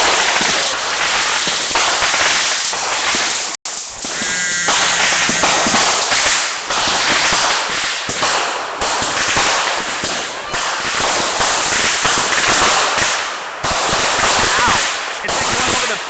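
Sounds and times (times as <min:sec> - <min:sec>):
fireworks crackling bangs: 0:00.0 - 0:16.0.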